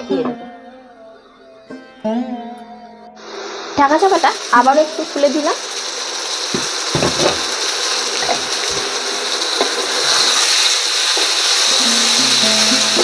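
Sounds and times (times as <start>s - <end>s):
curry sizzling in frying pan: 3.8s - 13.0s.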